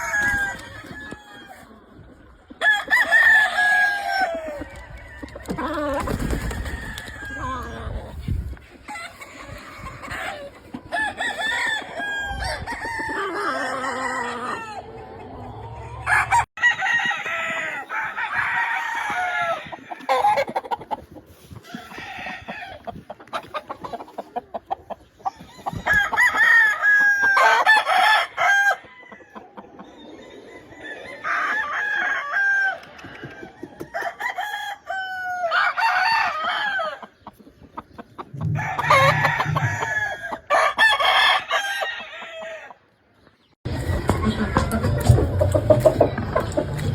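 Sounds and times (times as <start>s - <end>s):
roosters crowing: 0.0s - 1.9s, 2.5s - 24.2s, 25.2s - 37.2s, 38.2s - 43.0s, 43.7s - 46.9s
chickens clucking: 0.0s - 32.1s, 36.5s - 46.9s.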